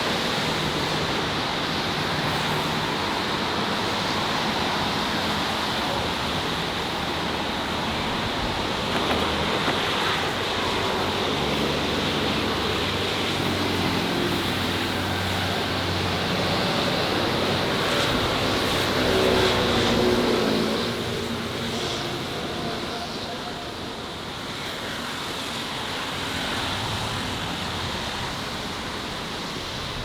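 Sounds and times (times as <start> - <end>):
city street traffic: 0.0 - 30.0.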